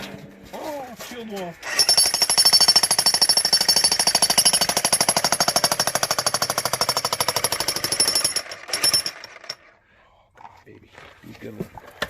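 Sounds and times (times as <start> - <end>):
jackhammer hammering into rock: 1.6 - 9.8.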